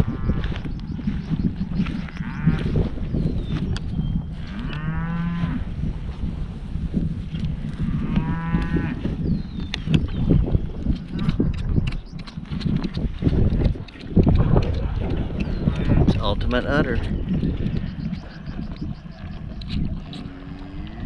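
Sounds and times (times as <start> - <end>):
steady low rumble: 0.0 - 21.0
cattle mooing: 4.4 - 5.7, 7.8 - 9.0, 20.1 - 21.0.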